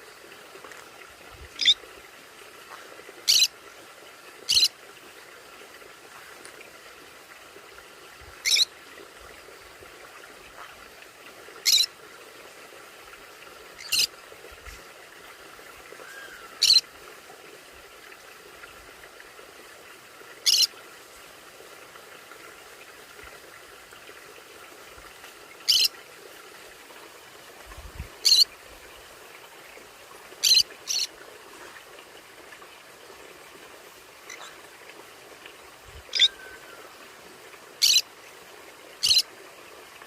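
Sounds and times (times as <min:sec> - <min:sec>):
faint steady hiss: 0:00.0 - 0:40.0
parrot high piercing calls: 0:03.3 - 0:03.5, 0:08.4 - 0:08.7, 0:11.7 - 0:11.9, 0:16.0 - 0:16.8, 0:25.7 - 0:25.9, 0:36.1 - 0:36.6, 0:37.8 - 0:38.0.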